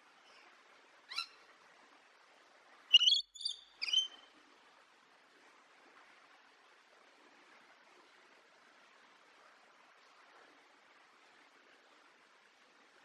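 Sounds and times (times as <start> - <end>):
bird chirping: 2.9 - 4.2.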